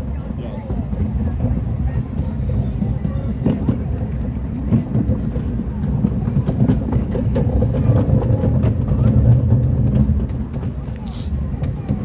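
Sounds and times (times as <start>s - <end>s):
train cars rumbling: 0.0s - 12.0s
wheels and couplings clicking: 3.4s - 12.0s.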